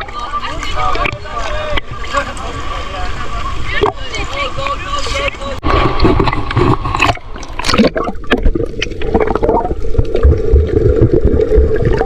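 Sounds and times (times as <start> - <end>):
muffled water sloshing: 5.2 - 12.0.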